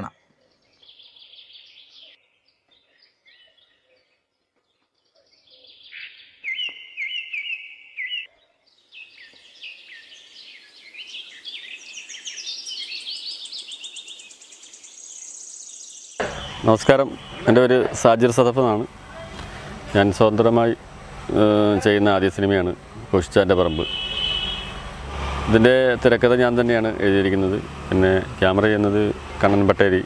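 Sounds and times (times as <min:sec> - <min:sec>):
birds chirping and singing: 0:00.0 - 0:18.8.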